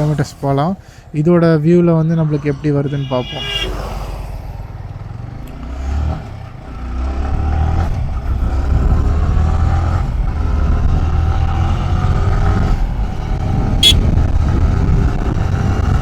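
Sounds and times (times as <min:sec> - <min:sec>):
motorcycle engine accelerating: 0:04.7 - 0:16.0.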